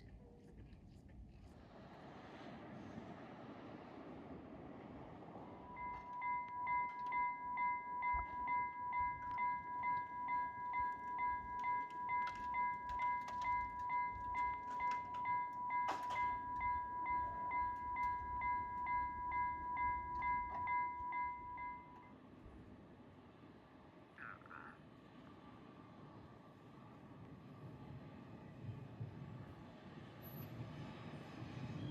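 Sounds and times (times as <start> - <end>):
level crossing warning bell ringing: 5.6 - 22.2.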